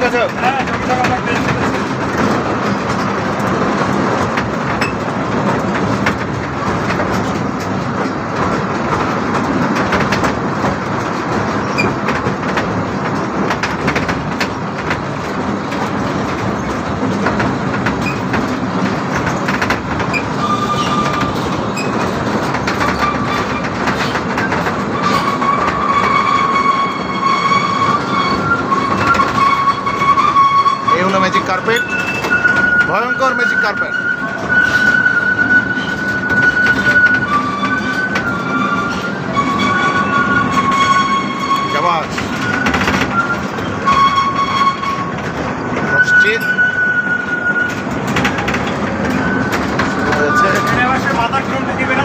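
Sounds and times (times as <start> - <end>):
ride-on train rumble: 0.0 - 52.0
wheels clicking over track: 0.0 - 52.0
high squealing tone: 25.0 - 45.2, 49.0 - 51.4.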